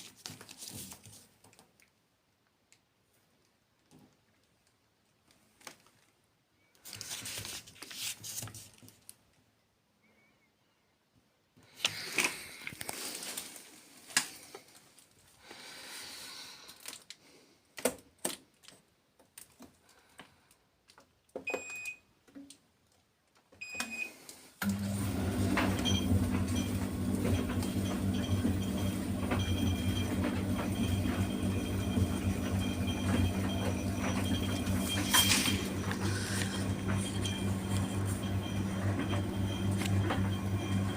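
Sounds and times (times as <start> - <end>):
tumble dryer motor humming: 24.6 - 40.9.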